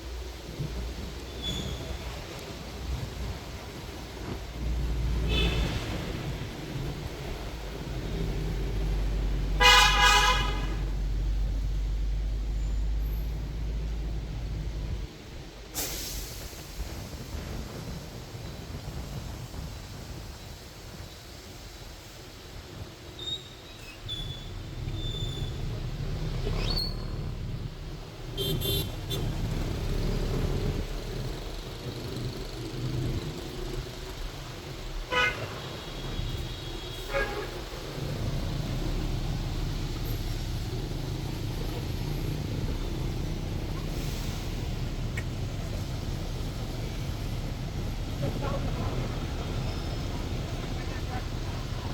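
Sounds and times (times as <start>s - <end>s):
low rumble of traffic: 0.0s - 51.9s
vehicle horn honking: 5.3s - 5.8s, 9.6s - 10.9s, 28.3s - 29.4s, 35.1s - 37.7s.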